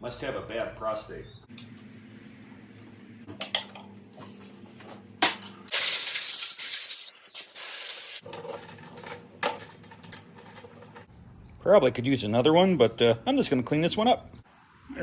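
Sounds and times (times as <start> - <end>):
aerosol can spraying: 5.7 - 8.2.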